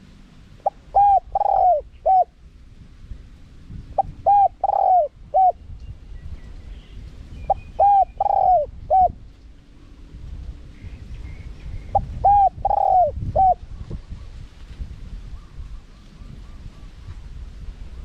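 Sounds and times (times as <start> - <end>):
dove cooing: 0.6 - 2.4, 4.0 - 5.6, 7.5 - 9.2, 11.9 - 13.6.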